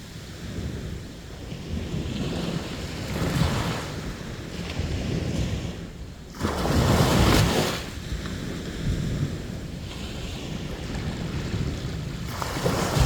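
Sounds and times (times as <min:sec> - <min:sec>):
sea waves washing onto beach: 0:00.0 - 0:13.0
wind rumble on microphone: 0:00.0 - 0:13.0
wave breaking loudly: 0:12.5 - 0:13.0.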